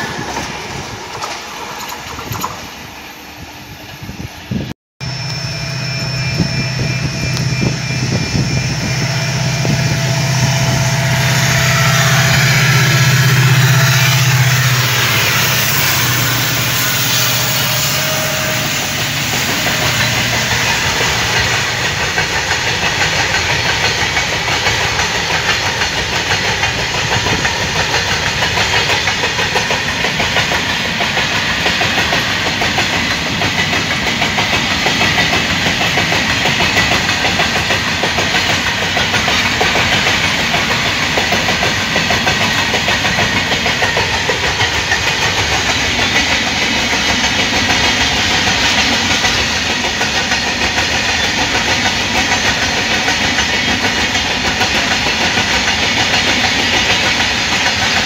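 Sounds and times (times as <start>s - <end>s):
wheels clattering over rail joints: 0.0s - 2.9s
diesel locomotive engine drone: 0.0s - 58.0s
freight train rolling past: 0.0s - 58.0s.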